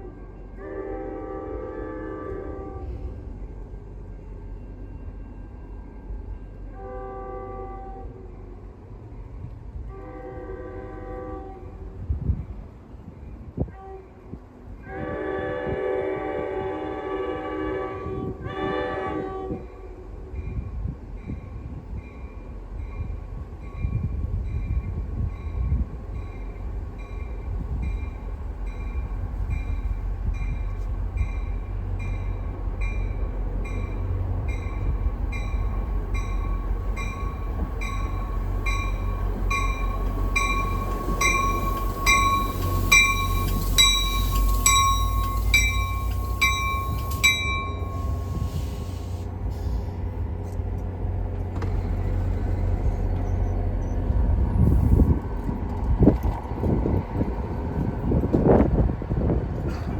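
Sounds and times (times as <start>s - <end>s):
train horn: 0.0s - 3.2s, 6.7s - 8.5s, 9.8s - 12.0s, 13.6s - 20.2s
train rumbling: 0.0s - 59.9s
bell ringing: 34.6s - 48.4s.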